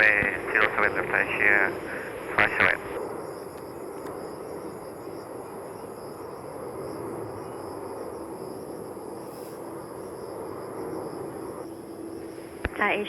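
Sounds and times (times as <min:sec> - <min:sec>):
distant jet engine rumble: 0:00.0 - 0:13.0.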